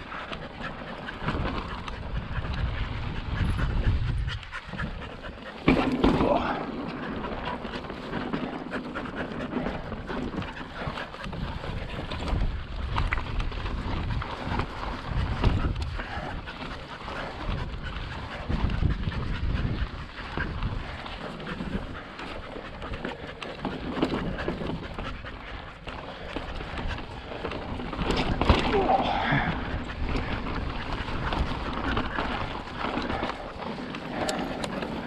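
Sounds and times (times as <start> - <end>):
wind buffeting microphone: 0.0 - 35.0
tyres rolling over rock: 5.5 - 13.0, 27.0 - 35.0.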